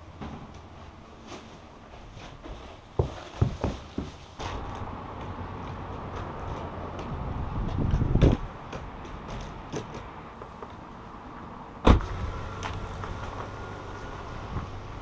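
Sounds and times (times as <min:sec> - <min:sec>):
door shutting with a thud: 0:11.8 - 0:12.2.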